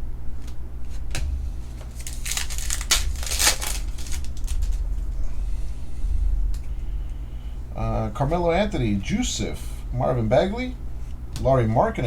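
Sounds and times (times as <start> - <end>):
foil wrapper tearing and crinkling: 1.8 - 4.8.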